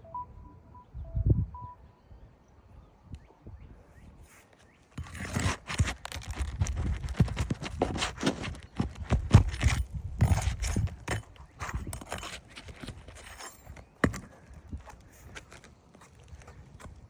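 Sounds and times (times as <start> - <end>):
roofing tool scraping shingles: 4.9 - 17.0.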